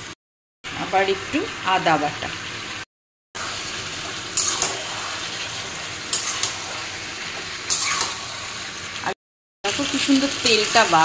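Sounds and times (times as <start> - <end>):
food sizzling in oil: 0.0 - 11.0
metal spatula scraping pan: 4.4 - 8.5.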